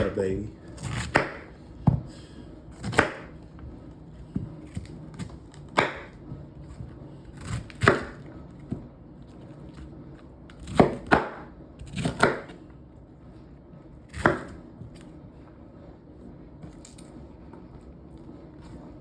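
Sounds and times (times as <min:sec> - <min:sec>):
knife chopping on cutting board: 0:00.0 - 0:03.5, 0:04.2 - 0:08.9, 0:10.5 - 0:12.6, 0:14.1 - 0:15.0.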